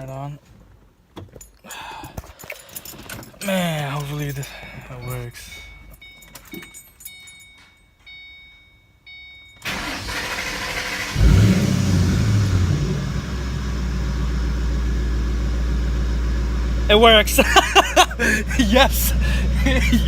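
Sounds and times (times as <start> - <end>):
car engine cranking and idling: 9.5 - 20.0.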